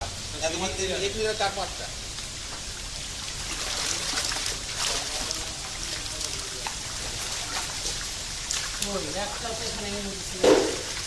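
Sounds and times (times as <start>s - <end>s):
steady pour of water: 0.0s - 11.0s
water trickling: 0.0s - 11.0s
fish splashing: 2.3s - 11.0s.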